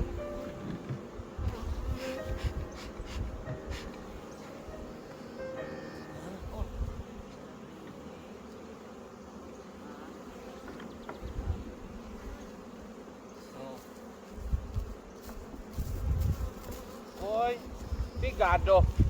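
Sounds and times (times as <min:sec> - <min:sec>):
low bumps: 0:00.0 - 0:07.1
honeybees buzzing: 0:00.0 - 0:19.0.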